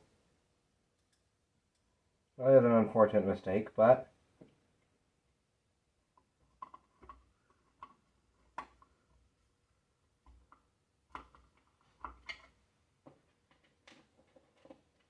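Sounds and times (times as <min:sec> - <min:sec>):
light clicks and taps of handling: 0:00.9 - 0:01.9, 0:06.1 - 0:09.4, 0:10.2 - 0:15.0.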